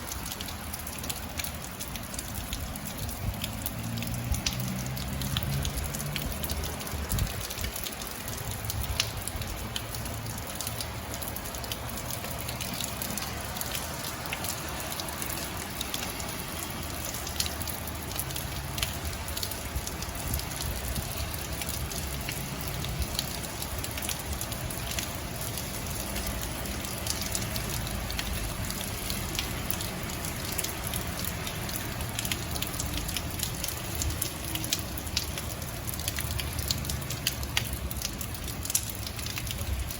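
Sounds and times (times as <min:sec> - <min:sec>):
raindrops ticking on surfaces: 0:00.0 - 0:39.9
steady rain falling: 0:00.0 - 0:39.9.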